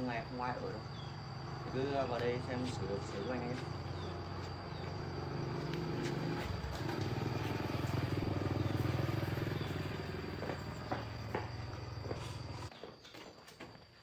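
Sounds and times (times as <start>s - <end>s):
small engine running: 2.6s - 12.7s.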